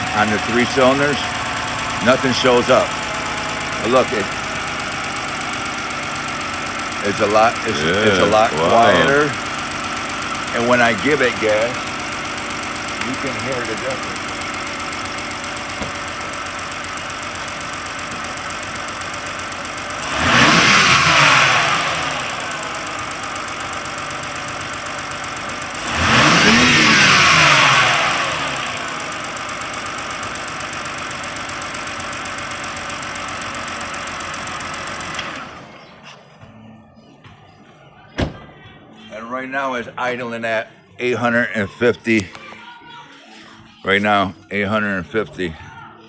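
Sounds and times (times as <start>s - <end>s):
car engine idling and revving: 0.0s - 36.4s.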